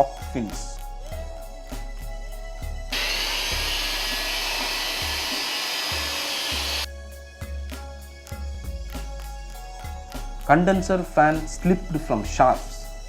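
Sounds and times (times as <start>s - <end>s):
background music: 0.0s - 13.0s
electric blower air rush: 2.9s - 6.9s.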